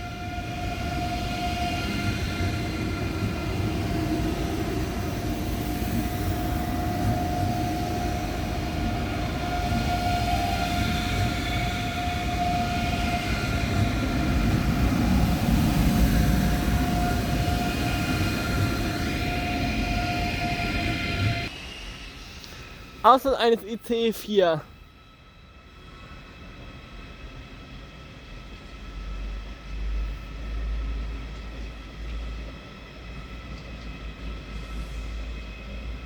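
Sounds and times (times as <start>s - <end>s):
electric train whine: 0.0s - 23.0s, 24.7s - 36.0s
train low rumble: 0.0s - 23.1s, 24.7s - 36.0s.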